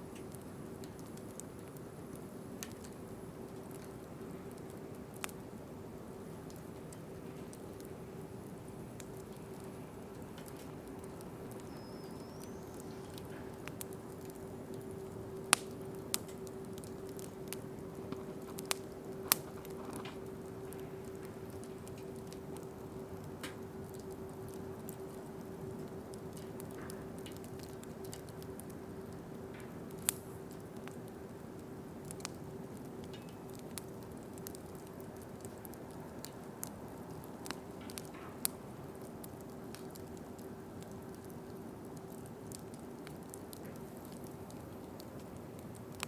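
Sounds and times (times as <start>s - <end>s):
steady low hum: 0.0s - 34.5s
campfire crackling and popping: 0.0s - 46.0s
steady hiss: 0.0s - 46.0s.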